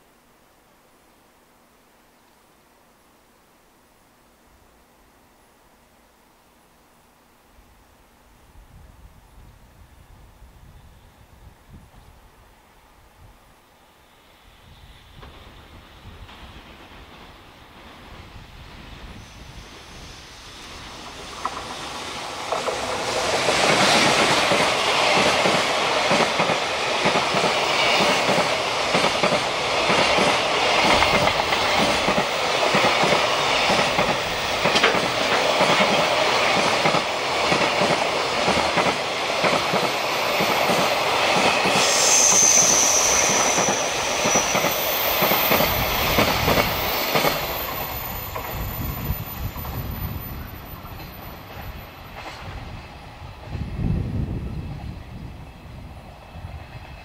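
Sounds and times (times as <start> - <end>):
freight train passing: 9.8 - 57.0
wheels clattering over rails: 21.4 - 40.8
high wheel squeal: 41.8 - 50.5.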